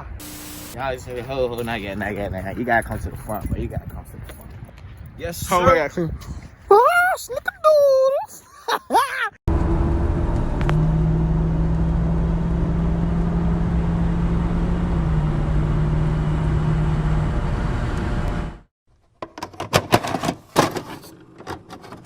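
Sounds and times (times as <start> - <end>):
car engine running: 9.5 - 18.6.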